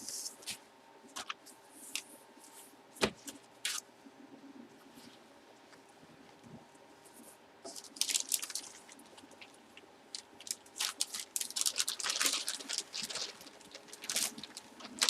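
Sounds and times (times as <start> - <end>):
plastic packaging rustling: 7.7 - 15.0.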